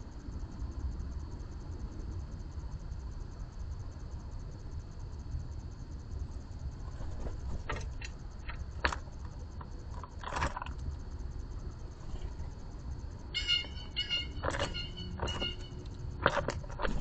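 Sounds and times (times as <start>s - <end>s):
insect trill: 0.0s - 17.0s
birds tapping on feeder: 13.4s - 17.0s.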